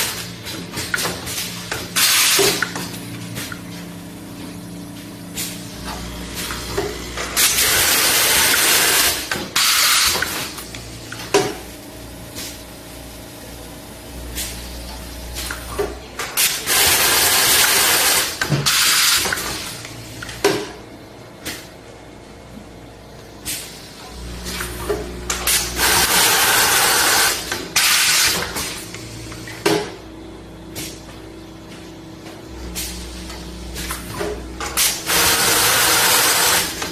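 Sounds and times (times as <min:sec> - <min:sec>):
sharp pneumatic clacks: 0:00.0 - 0:03.6, 0:05.3 - 0:11.7, 0:15.3 - 0:20.8, 0:23.4 - 0:23.8, 0:24.4 - 0:30.0, 0:32.6 - 0:36.9
low steady machine hum: 0:00.0 - 0:09.6, 0:19.6 - 0:27.8, 0:28.6 - 0:36.9.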